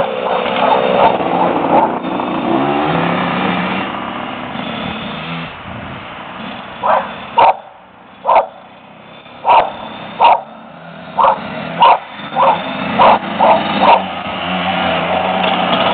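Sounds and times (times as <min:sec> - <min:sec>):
dog barking: 0:00.0 - 0:01.9, 0:06.8 - 0:08.6, 0:09.4 - 0:10.6, 0:11.2 - 0:14.1
small motorbike engine running: 0:00.0 - 0:05.6, 0:06.4 - 0:15.9.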